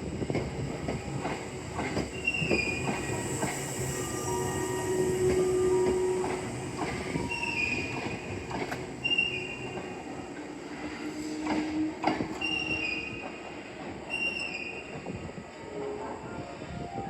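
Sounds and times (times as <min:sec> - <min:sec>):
train wheels squealing: 0:01.8 - 0:15.2.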